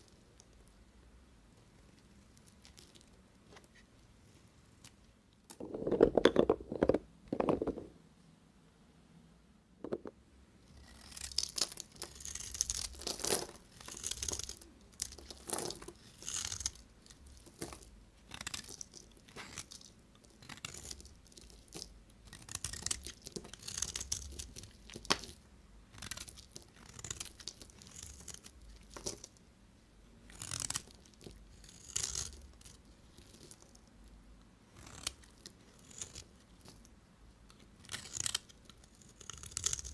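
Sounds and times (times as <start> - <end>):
knife cutting bar soap: 10.7 - 19.8.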